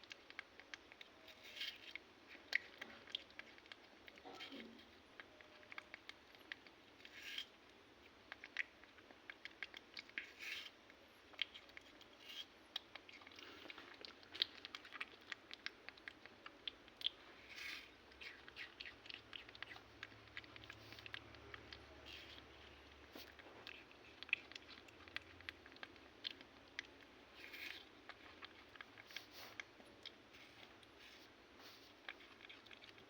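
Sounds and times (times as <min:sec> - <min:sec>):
rustling: 0:22.0 - 0:33.0.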